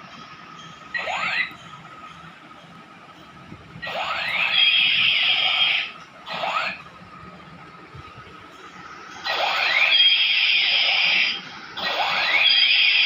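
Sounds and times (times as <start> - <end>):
steady high tone: 3.8 - 7.5, 8.2 - 13.0
toy pistol hissing rising sweeps: 9.2 - 13.0.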